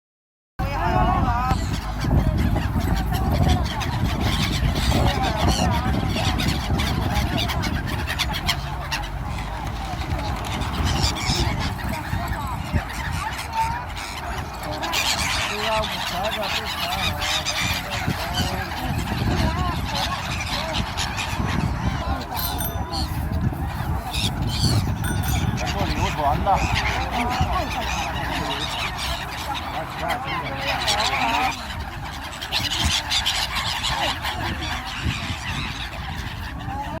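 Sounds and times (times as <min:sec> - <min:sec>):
seagulls squawking: 0:00.6 - 0:37.0.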